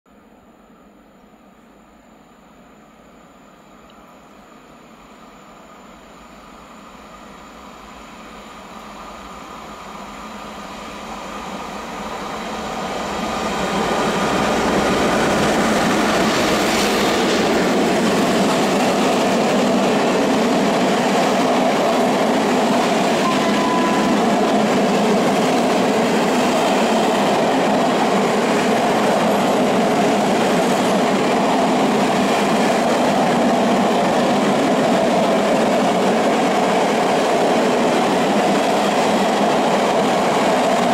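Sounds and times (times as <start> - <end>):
freight train approaching: 0.1 - 40.9
wheels rumbling and clattering on rails: 8.7 - 40.9.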